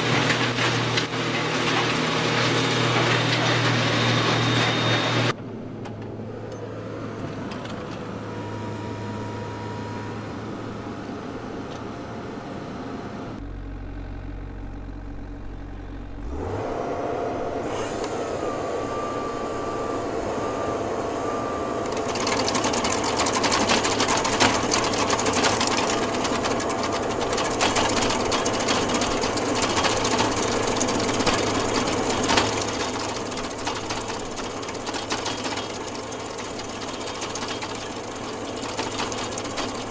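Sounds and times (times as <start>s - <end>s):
cutter wheel grinding wood: 0.0s - 5.3s, 16.2s - 39.9s
stump grinder engine running: 0.0s - 5.4s, 13.4s - 39.9s.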